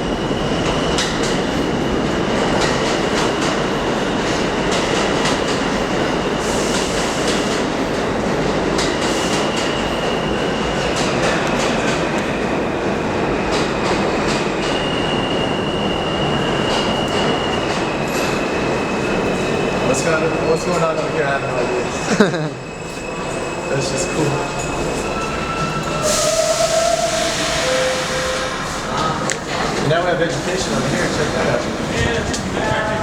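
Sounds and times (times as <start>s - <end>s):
subway train rumbling: 0.0s - 33.0s
high wheel squeal: 22.6s - 29.0s.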